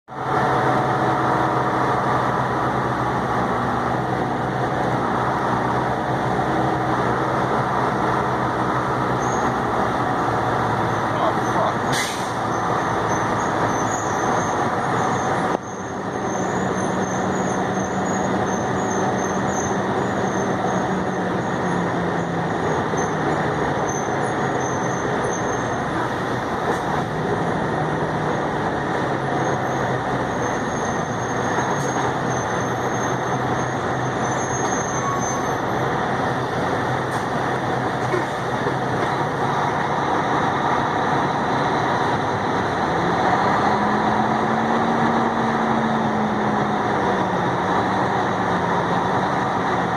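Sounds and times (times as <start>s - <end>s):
road rumble: 0.0s - 49.9s
truck engine running: 0.1s - 49.9s.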